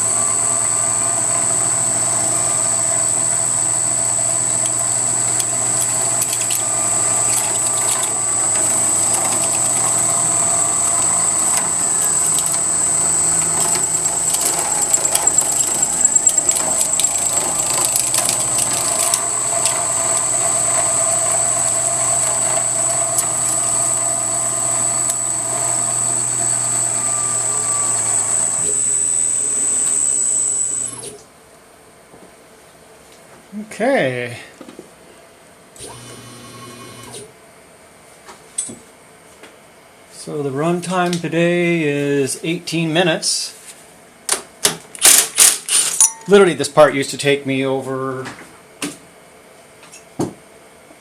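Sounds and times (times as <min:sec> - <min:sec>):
machine hum: 0:00.0 - 0:31.2
milling spindle high whine: 0:00.0 - 0:31.2, 0:35.8 - 0:37.2, 0:45.9 - 0:48.1.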